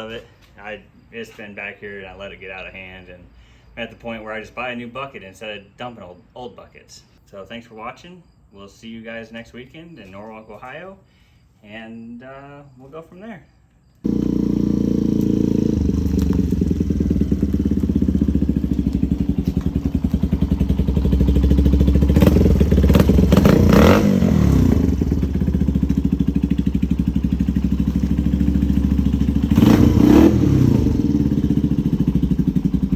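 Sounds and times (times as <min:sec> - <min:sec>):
vehicle engine idling and revving: 0:14.1 - 0:32.9.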